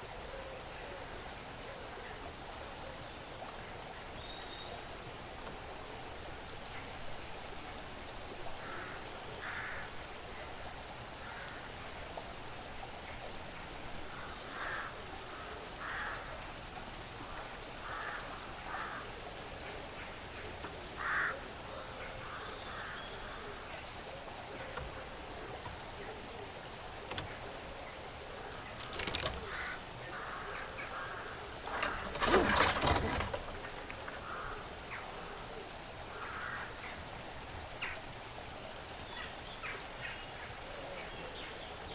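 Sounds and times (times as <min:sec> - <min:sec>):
rustling and crackling in dry leaves: 0:28.2 - 0:35.4.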